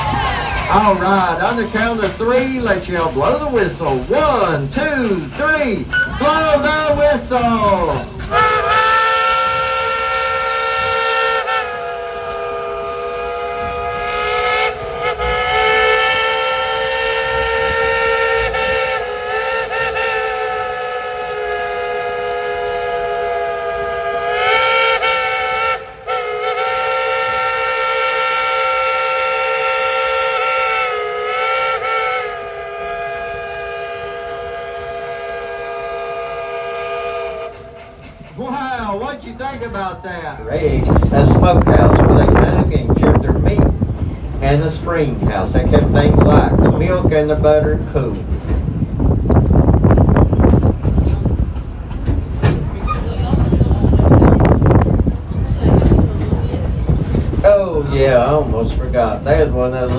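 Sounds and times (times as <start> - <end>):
steam locomotive whistle blasts: 8.3 - 38.4.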